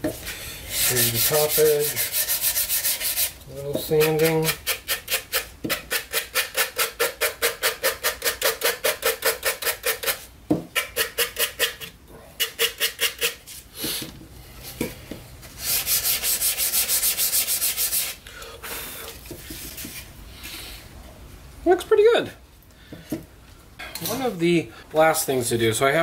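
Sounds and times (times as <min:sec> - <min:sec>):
wood sanded by hand: 0:00.7 - 0:10.2, 0:15.6 - 0:18.2.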